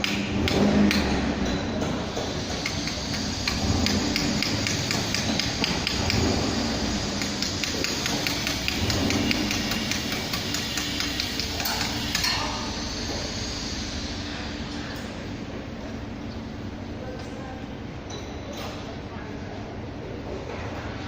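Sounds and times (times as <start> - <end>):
hand tools clicking on engine: 2.2 - 6.4, 7.1 - 12.4.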